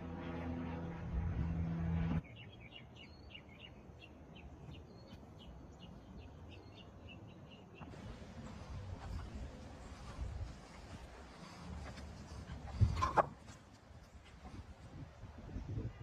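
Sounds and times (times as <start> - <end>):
mechanical drone with low hum: 0.0 - 2.8.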